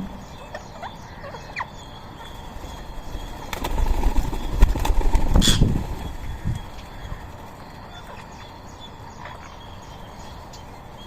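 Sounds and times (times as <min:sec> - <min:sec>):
birds chirping: 0:00.0 - 0:11.0
wings fluttering: 0:02.5 - 0:08.2.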